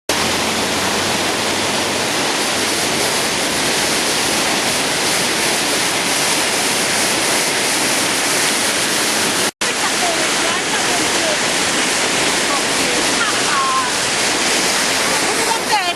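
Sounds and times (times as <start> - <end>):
river rushing in flood: 0.1 - 15.9.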